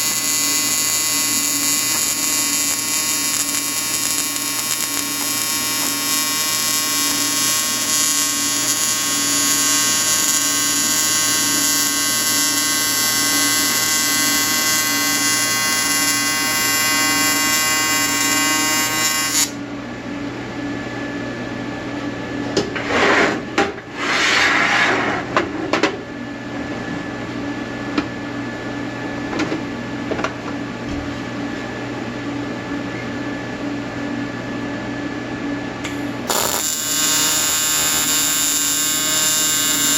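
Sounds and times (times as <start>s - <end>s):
welding arc buzzing: 0.0s - 19.6s, 35.8s - 39.9s.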